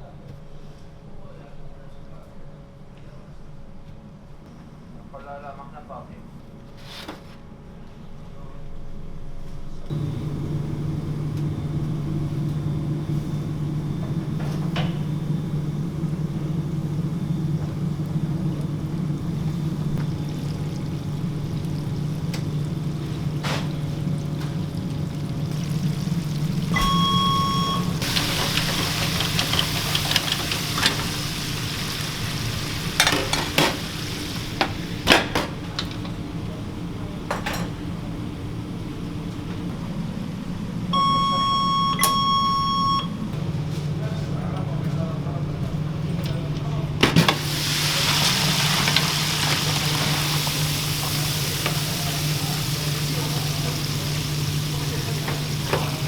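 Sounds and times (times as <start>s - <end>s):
frying sizzle: 9.9s - 40.9s, 47.2s - 56.0s
low machine hum: 9.9s - 56.0s
short electronic beep: 26.8s - 28.0s, 41.0s - 43.2s.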